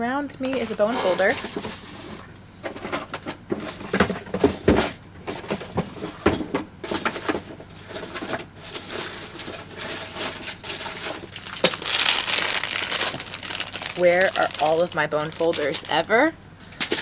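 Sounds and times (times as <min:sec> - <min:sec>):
rummaging knocks clicks and rustles: 0:00.3 - 0:17.0.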